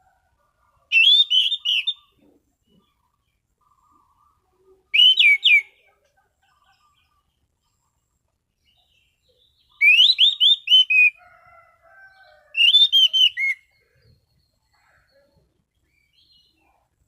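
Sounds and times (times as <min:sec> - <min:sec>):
thrush whistled phrases: 0:00.9 - 0:02.1, 0:05.0 - 0:05.7, 0:09.8 - 0:11.2, 0:12.6 - 0:13.7.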